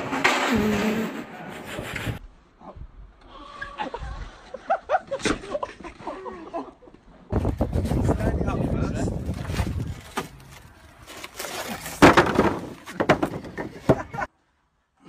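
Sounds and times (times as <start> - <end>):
crash: 0.0 - 2.2, 11.2 - 14.1
person falling onto ground: 11.2 - 14.2.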